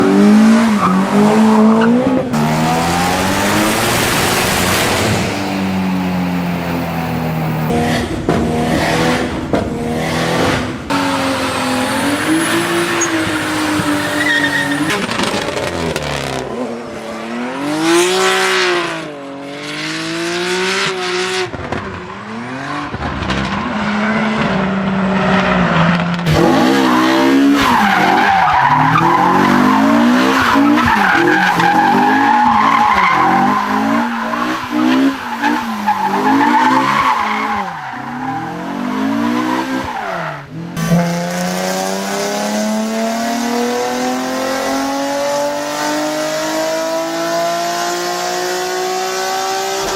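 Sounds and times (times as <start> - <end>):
car engines revving hard: 0.0 - 49.9
tyres squealing: 11.6 - 15.1.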